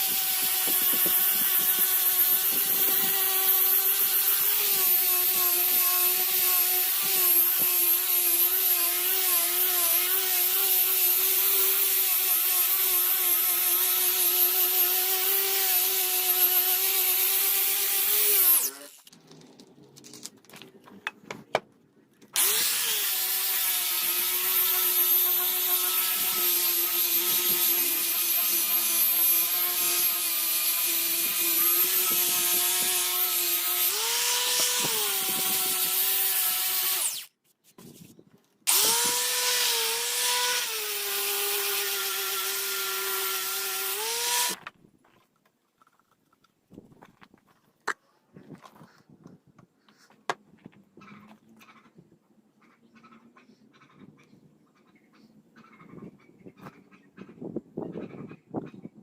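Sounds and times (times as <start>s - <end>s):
power tool motor whining: 0.0s - 19.1s, 22.4s - 37.3s, 38.7s - 44.6s.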